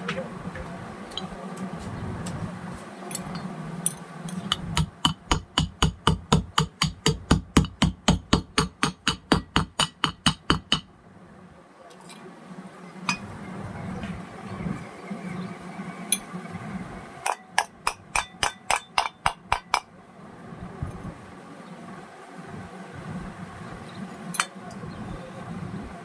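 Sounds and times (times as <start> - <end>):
hammer tapping on metal: 4.3 - 10.9, 17.2 - 19.9.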